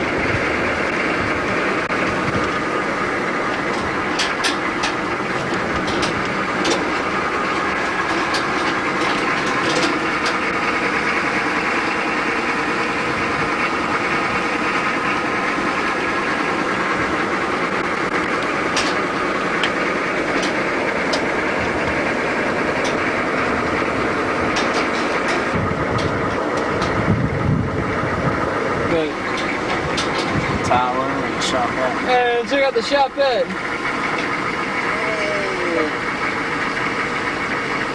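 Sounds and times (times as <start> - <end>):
vehicle engine and road noise: 0.0 - 37.9.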